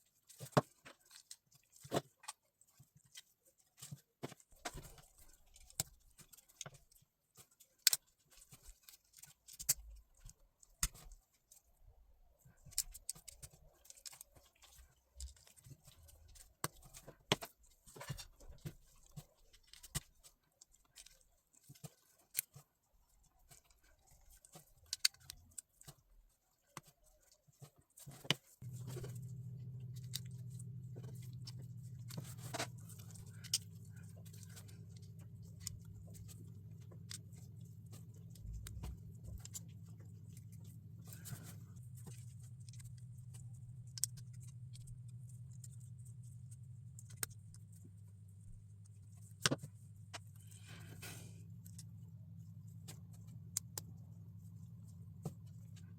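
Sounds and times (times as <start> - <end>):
steady low hum: 28.6 - 55.9.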